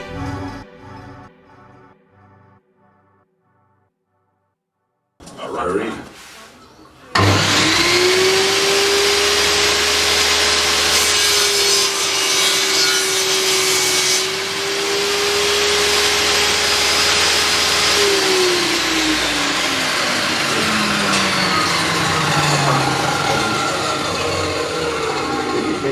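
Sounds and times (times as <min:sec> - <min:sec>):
table saw motor whining: 0:07.1 - 0:25.9.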